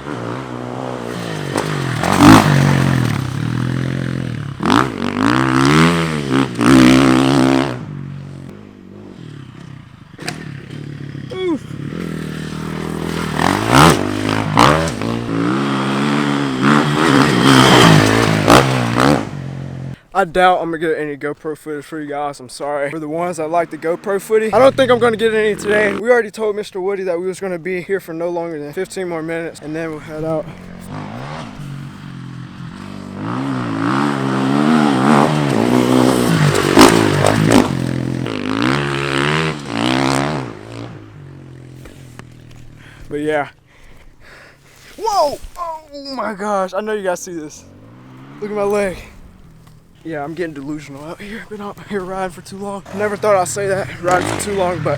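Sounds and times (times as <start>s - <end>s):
dirt bike engine revving: 0.0s - 20.0s, 23.3s - 26.0s, 28.7s - 43.4s, 45.1s - 54.9s
sharp cracks: 9.6s - 10.8s, 34.6s - 38.4s.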